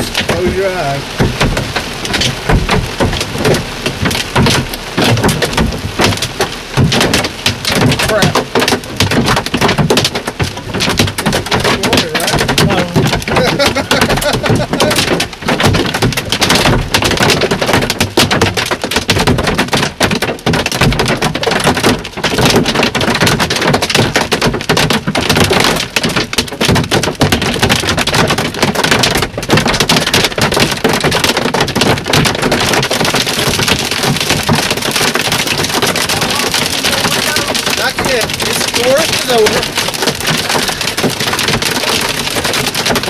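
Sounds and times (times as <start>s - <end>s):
hail pounding a truck roof: 0.0s - 43.0s.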